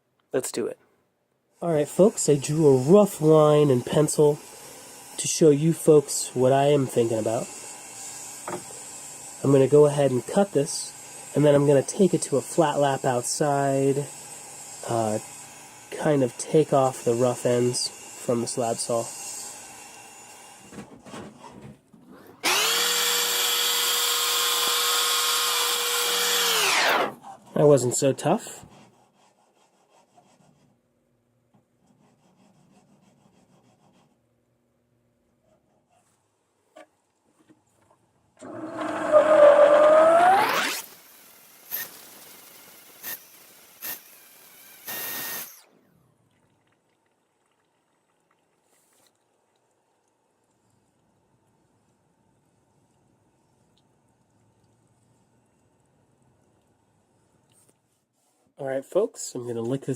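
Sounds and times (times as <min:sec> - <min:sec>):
trim saw motor whining: 0:22.4 - 0:27.2, 0:38.4 - 0:46.1.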